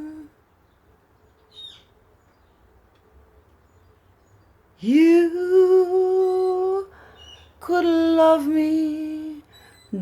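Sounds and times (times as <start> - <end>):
woman singing: 0.0 - 0.4, 4.8 - 6.9, 7.6 - 10.0
faint background hiss: 0.0 - 10.0.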